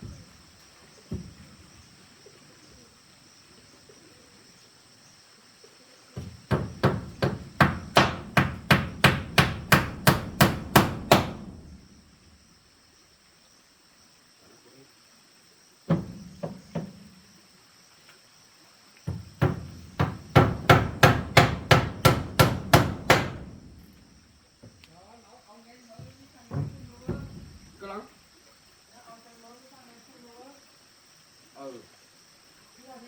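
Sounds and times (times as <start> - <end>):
hammer strikes: 6.5 - 11.8, 19.4 - 24.0.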